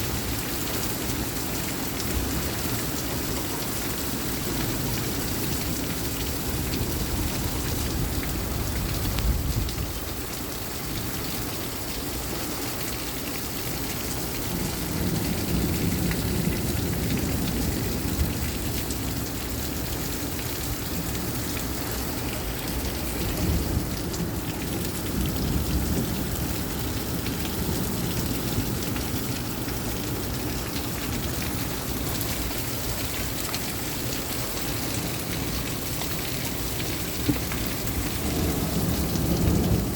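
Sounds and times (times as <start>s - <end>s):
heavy rain pouring: 0.0s - 39.9s
thunder rumbles: 34.9s - 39.9s.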